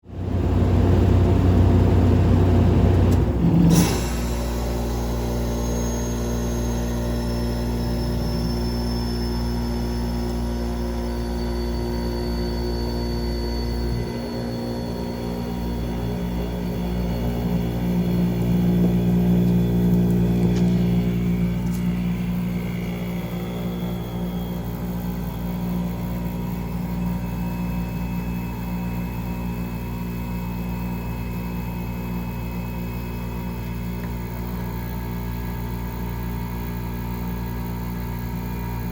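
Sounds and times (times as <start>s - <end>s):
fan noise: 0.2s - 31.8s
heat pump humming: 0.2s - 38.9s.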